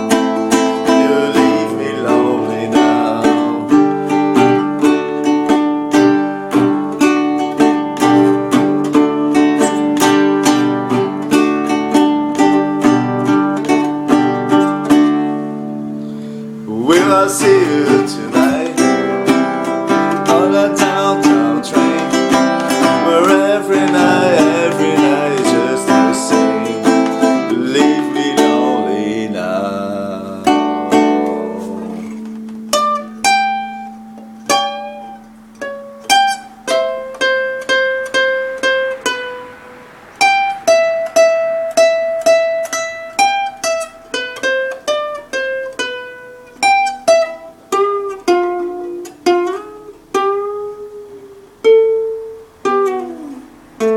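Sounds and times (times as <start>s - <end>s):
person singing: 0.0s - 15.0s, 16.4s - 33.1s
slow picked string melody: 0.0s - 53.9s
strummed acoustic guitar: 0.0s - 53.9s.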